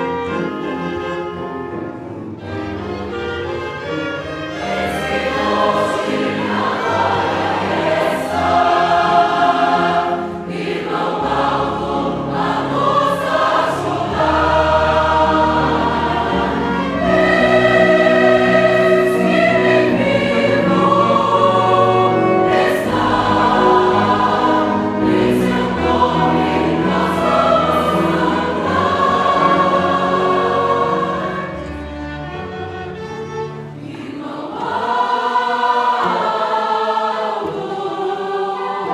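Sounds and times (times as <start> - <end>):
choir singing a hymn: 0.0 - 38.9
instrumental accompaniment: 0.0 - 38.9.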